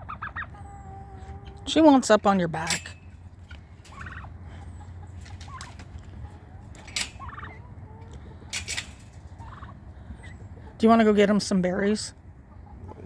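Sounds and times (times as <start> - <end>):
turkey gobbling: 0.0 - 1.8, 3.8 - 10.8, 12.5 - 13.0.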